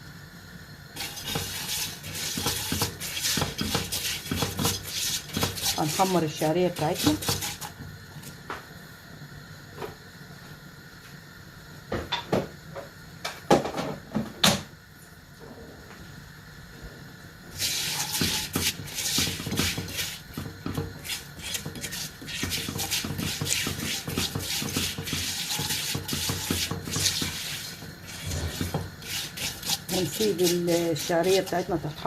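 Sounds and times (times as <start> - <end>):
noodles sizzling in hot oil: 0.6 - 8.1, 17.5 - 32.0.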